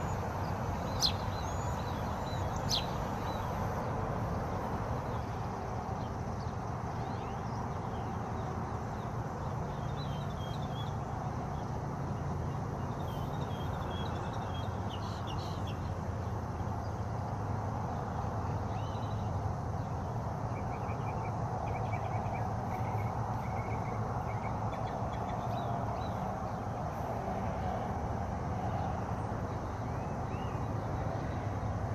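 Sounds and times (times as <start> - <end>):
small birds chirping: 0.0 - 3.9, 5.9 - 17.0, 18.7 - 27.1.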